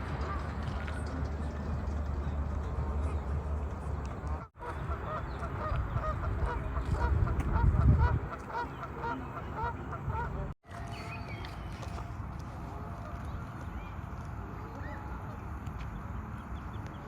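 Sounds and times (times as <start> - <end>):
flock of birds calling: 4.3 - 10.5.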